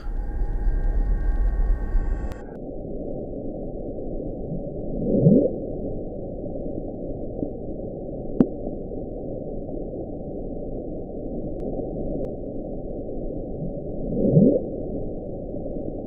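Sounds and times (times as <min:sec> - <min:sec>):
faint rising sweep: 0:00.0 - 0:02.6
low underwater rumble and hiss: 0:00.0 - 0:16.0.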